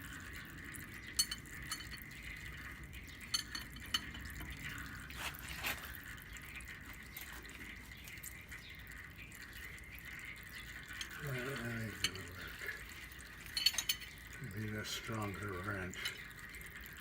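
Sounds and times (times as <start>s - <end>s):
wrench clinking on metal: 1.2s - 2.0s, 3.3s - 4.4s, 13.5s - 14.2s.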